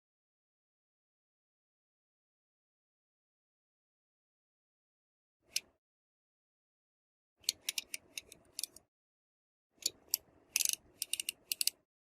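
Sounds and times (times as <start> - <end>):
clicks of small plastic parts: 5.5 - 5.7, 7.4 - 8.9, 9.8 - 11.8.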